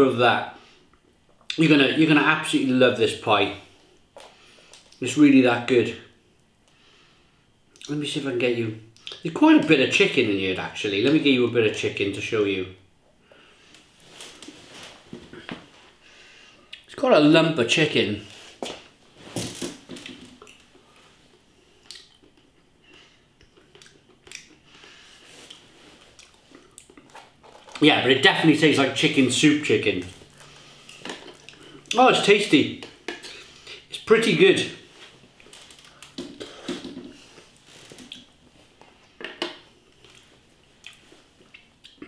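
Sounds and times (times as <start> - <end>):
man chewing food: 20.0 - 27.4, 30.2 - 31.9, 35.2 - 42.0.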